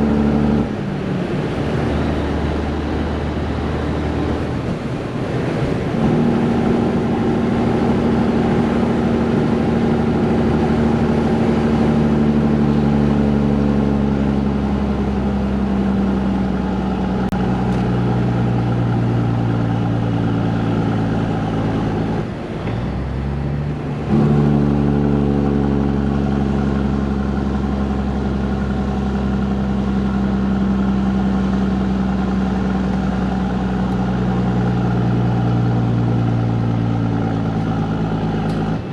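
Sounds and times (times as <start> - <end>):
truck diesel engine pulling: 0.0 - 38.9.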